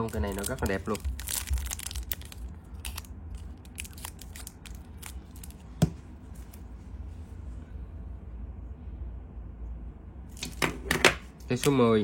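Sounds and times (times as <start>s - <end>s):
lighters and packaging being handled: 0.0s - 5.6s.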